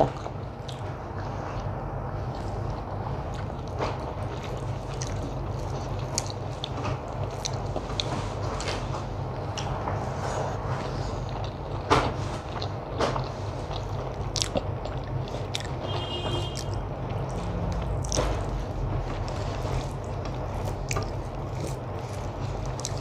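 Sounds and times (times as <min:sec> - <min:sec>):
close chewing and mouth sounds: 0:00.0 - 0:23.0
steady low hum: 0:00.0 - 0:23.0.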